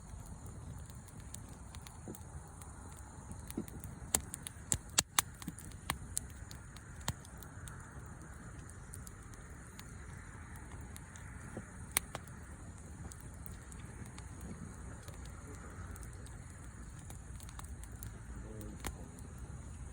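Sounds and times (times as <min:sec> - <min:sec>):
bonfire crackling and popping: 0:00.0 - 0:19.9.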